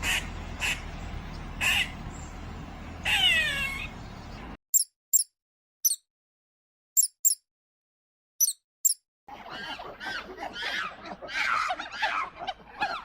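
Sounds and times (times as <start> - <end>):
animal calls: 3.0 - 4.0, 9.3 - 13.0
short high chirps: 4.7 - 6.0, 7.0 - 7.4.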